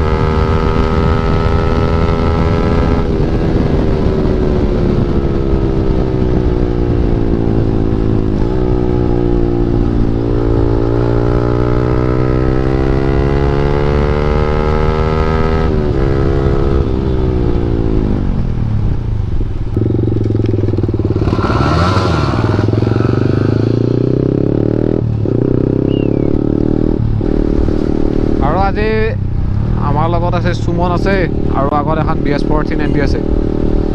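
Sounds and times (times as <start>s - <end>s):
motorcycle engine revving: 0.0s - 18.8s, 19.7s - 33.9s.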